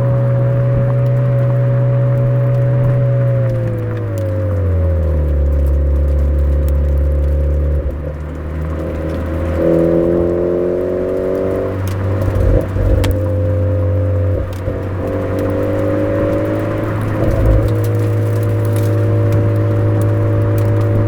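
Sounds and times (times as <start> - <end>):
car engine revving: 0.0 - 21.0
low thumps: 12.2 - 13.4, 17.0 - 18.1.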